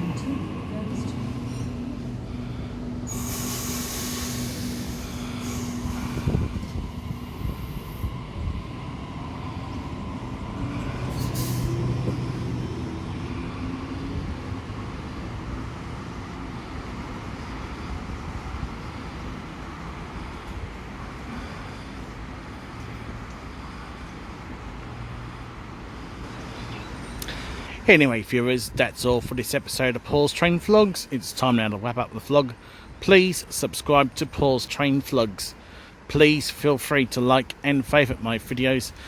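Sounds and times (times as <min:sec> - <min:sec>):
heavy vehicle engine running: 0:00.0 - 0:26.8
air brakes hissing: 0:02.4 - 0:08.1, 0:11.0 - 0:12.1.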